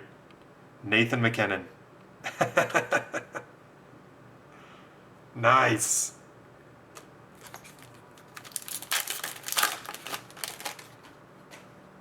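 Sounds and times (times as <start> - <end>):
cards and wrappers crinkling: 7.0 - 11.6.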